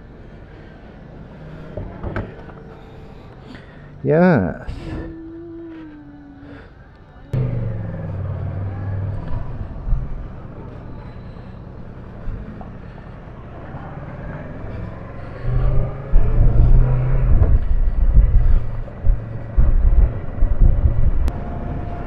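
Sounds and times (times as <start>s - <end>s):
motorcycle engine: 7.3s - 22.0s
wind buffeting microphone: 7.3s - 22.0s.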